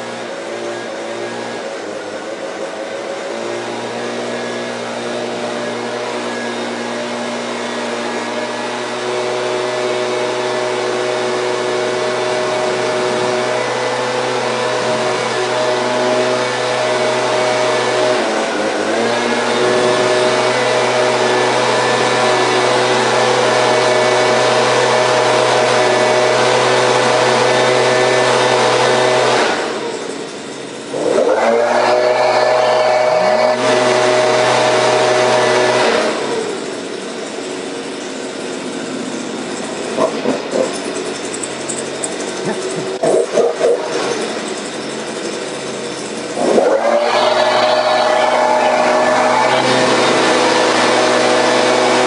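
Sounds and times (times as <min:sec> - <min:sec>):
blower gas engine running: 0:00.0 - 0:52.0
engine knocks: 0:36.5 - 0:48.7.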